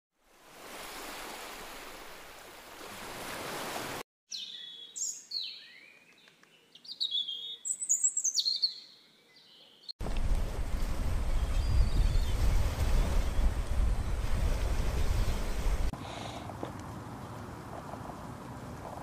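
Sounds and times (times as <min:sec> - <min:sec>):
birds chirping: 0:04.3 - 0:09.9, 0:10.8 - 0:15.9.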